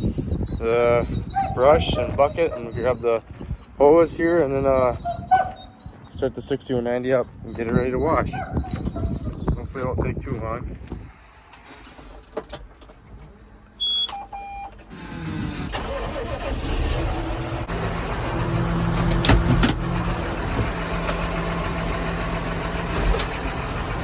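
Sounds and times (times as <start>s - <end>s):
short beeps: 13.8s - 14.7s
tractor diesel engine: 14.9s - 24.0s.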